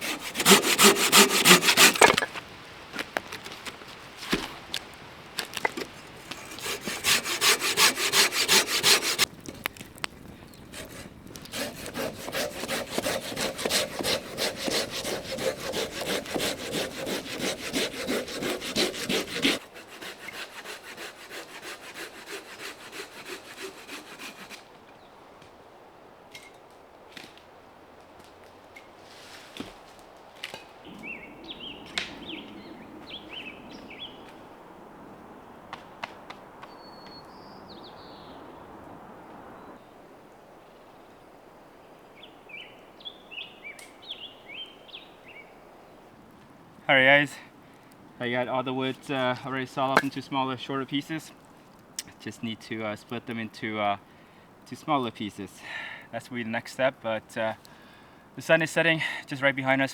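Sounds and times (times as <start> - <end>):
hand saw cutting firewood: 0.0 - 2.4, 3.3 - 9.3, 10.7 - 24.7, 48.8 - 50.4.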